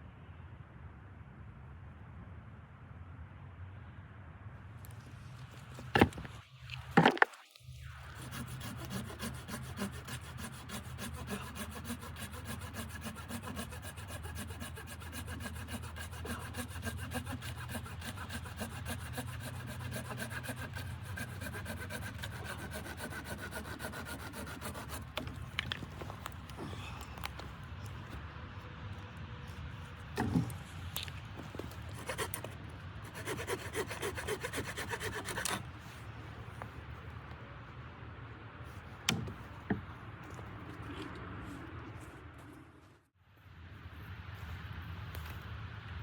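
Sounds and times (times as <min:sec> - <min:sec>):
saw cutting through wood: 0:07.9 - 0:26.8, 0:30.1 - 0:36.0.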